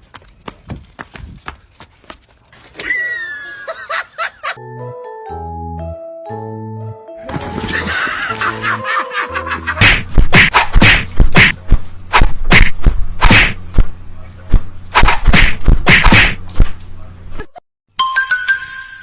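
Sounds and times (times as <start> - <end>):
rapid sharp smacks: 9.8 - 13.9, 14.5 - 16.7.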